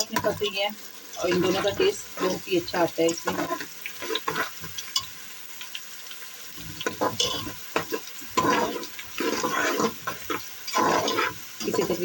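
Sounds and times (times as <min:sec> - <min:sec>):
food sizzling in oil: 0:00.0 - 0:12.0
spoon scraping and clicking: 0:03.1 - 0:05.1, 0:06.8 - 0:11.9.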